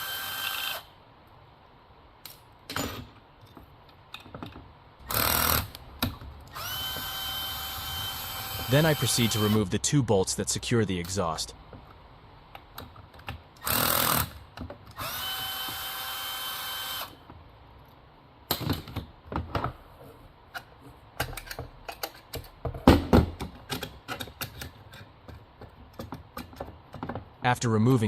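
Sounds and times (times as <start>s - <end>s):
power drill whining: 0.0s - 0.9s, 6.5s - 9.6s, 15.0s - 17.2s
metal parts clicking and knocking: 20.6s - 27.3s.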